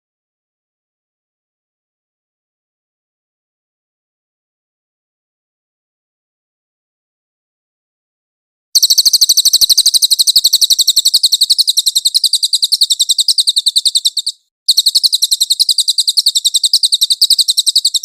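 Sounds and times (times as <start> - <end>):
songbird trilling: 8.8 - 18.0.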